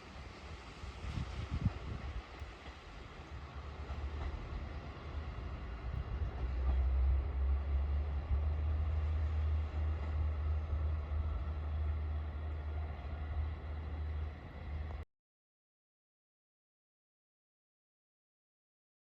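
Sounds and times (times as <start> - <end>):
diesel railcar engine rumbling: 0.0 - 15.0.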